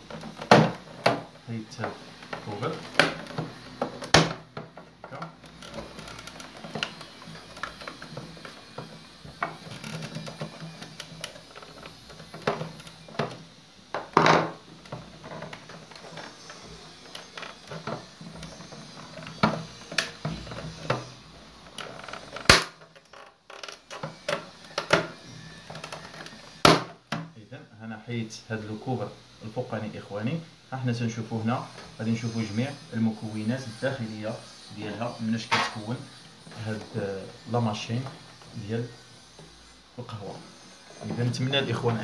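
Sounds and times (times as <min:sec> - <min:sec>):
plastic scraping: 0:00.0 - 0:27.0.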